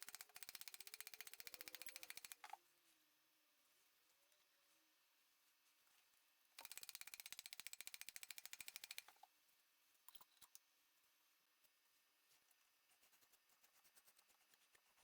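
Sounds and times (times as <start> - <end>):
rapid mechanical clicking: 0.0 - 2.6, 6.6 - 9.2.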